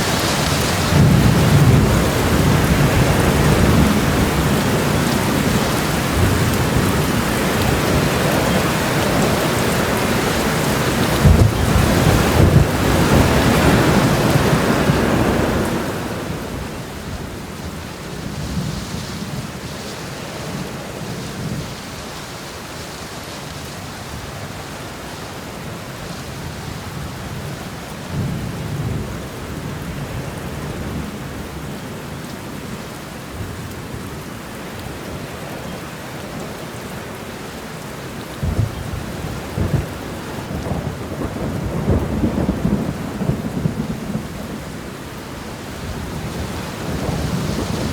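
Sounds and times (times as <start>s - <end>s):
thunder rumbling: 0.0s - 19.7s, 38.4s - 47.9s
steady rain falling: 0.0s - 47.9s.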